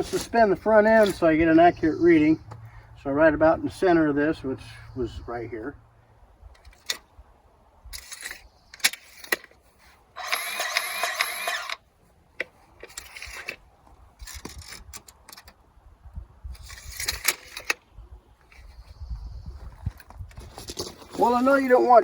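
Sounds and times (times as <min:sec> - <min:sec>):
tool clicks and clatters: 0:07.9 - 0:09.6, 0:10.2 - 0:11.8, 0:12.4 - 0:13.6, 0:14.2 - 0:15.6, 0:16.6 - 0:17.8
rattling mechanical whir: 0:10.2 - 0:11.8.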